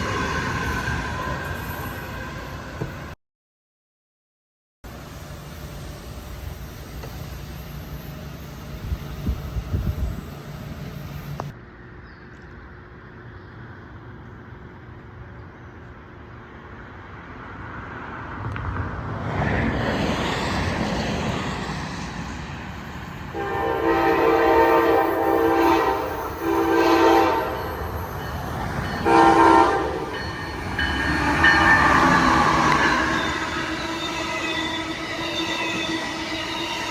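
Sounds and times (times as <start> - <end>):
train approaching: 0.0 - 3.2, 4.9 - 12.0, 12.6 - 36.9
train horn blasts: 23.3 - 27.9, 28.9 - 30.5.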